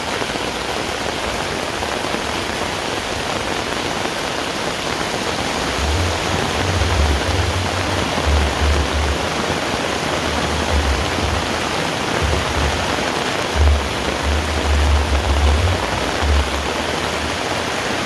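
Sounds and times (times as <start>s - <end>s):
heavy rain hissing: 0.0s - 18.0s
low rumbling buffets: 5.6s - 17.8s.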